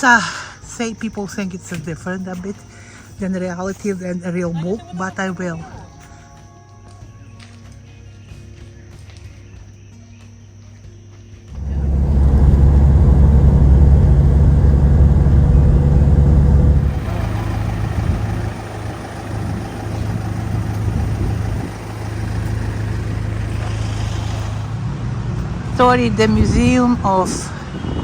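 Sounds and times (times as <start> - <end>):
traffic rumble: 11.5 - 27.8.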